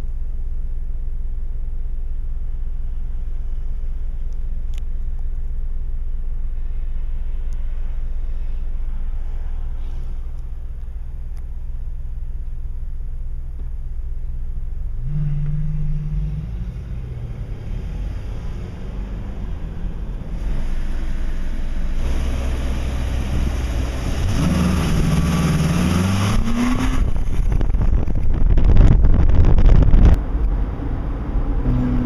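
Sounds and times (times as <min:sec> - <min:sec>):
low engine and road rumble: 0:00.0 - 0:32.0
car engine revving: 0:14.5 - 0:32.0.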